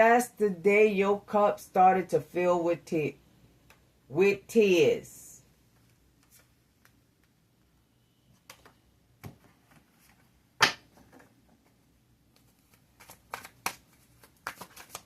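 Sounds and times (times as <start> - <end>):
cards clicking and tapping: 8.4 - 9.8, 12.3 - 15.0.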